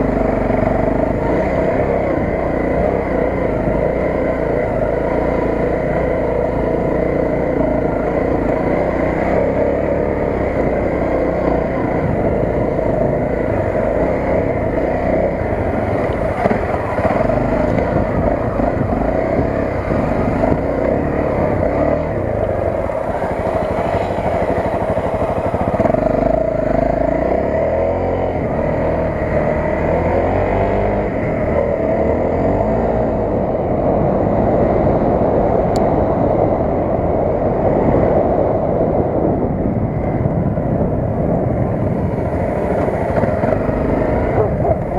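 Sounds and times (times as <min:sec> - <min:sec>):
dirt bike engine revving: 0:00.0 - 0:33.4.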